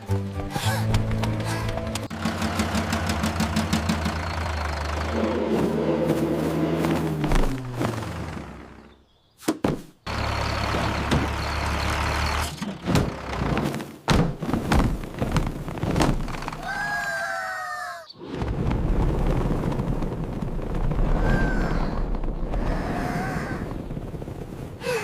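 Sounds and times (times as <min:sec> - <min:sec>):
tractor engine rumble: 0:00.9 - 0:09.0, 0:10.0 - 0:13.9
knocks and thuds: 0:09.5 - 0:10.0, 0:12.6 - 0:16.6.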